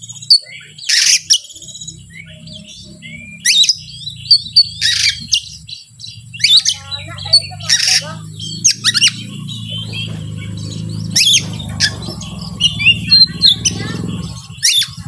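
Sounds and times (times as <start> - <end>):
bird whistles and chirps: 0.0 - 15.0
bird harsh rasping scolds: 3.4 - 15.0.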